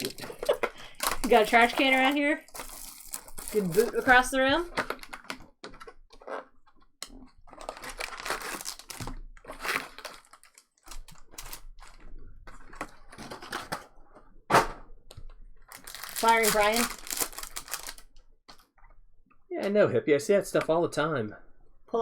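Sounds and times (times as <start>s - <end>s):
wrappers crinkling and tearing: 0.8s - 5.4s, 7.5s - 13.8s, 15.7s - 18.6s.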